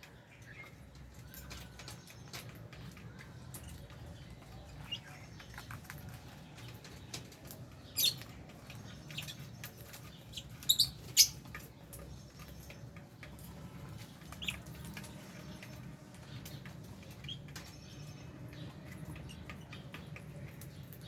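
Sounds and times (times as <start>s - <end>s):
soft clicks and pattering: 0.0s - 21.0s
lovebirds chirping shrilly: 7.8s - 12.8s.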